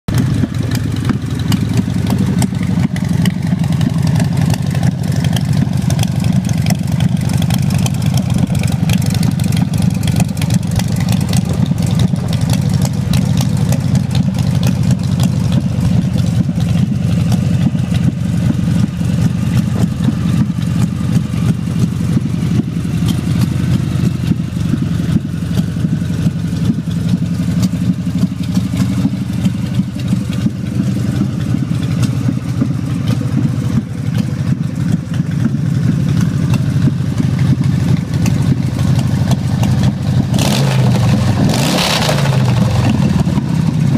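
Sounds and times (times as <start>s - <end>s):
motorcycle engine idling: 0.1s - 43.9s.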